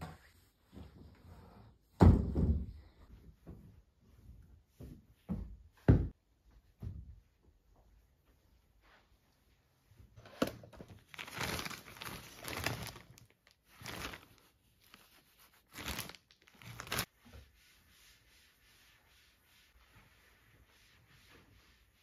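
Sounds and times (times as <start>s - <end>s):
packaging crinkling and tearing: 11.1s - 14.4s, 15.7s - 17.1s.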